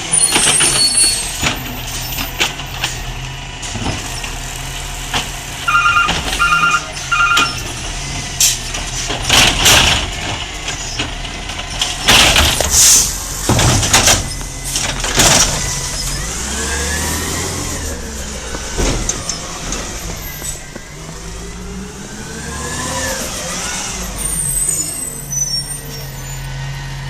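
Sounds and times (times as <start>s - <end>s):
garbage truck engine hum: 0.0s - 27.0s
tones rising and falling in pitch: 5.7s - 7.5s.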